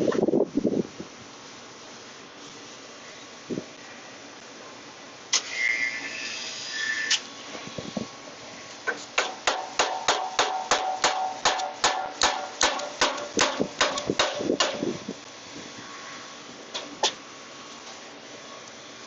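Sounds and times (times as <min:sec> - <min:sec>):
hammer tapping on metal: 0:09.2 - 0:14.8.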